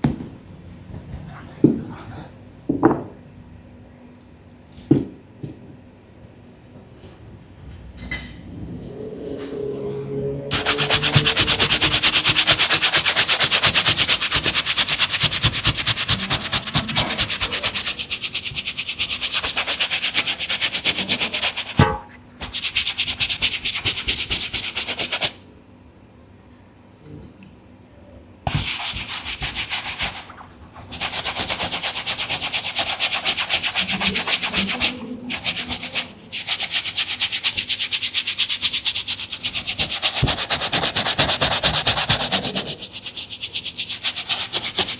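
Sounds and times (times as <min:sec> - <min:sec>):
scrubbing a sneaker: 0:10.5 - 0:25.3, 0:28.5 - 0:44.9.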